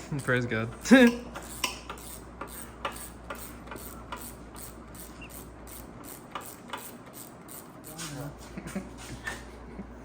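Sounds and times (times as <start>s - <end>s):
metal tools clicking and tapping: 0.8s - 4.3s.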